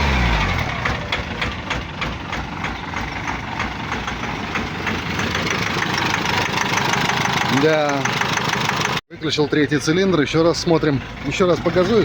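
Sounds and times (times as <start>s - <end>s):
diesel engine idling: 0.0s - 12.0s
sharp engine knock: 0.8s - 9.0s.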